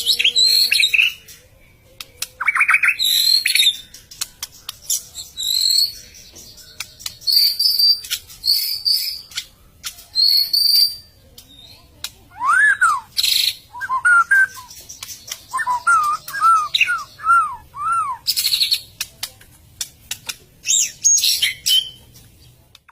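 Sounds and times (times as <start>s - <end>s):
bird singing varied whistles: 7.3s - 9.2s, 10.2s - 11.0s, 12.3s - 14.8s, 15.5s - 18.8s.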